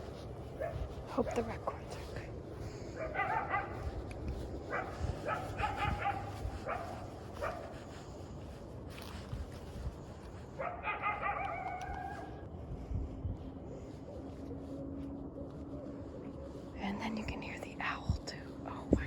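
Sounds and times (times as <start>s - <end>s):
coyote barking and howling: 2.6s - 8.1s, 10.6s - 12.4s.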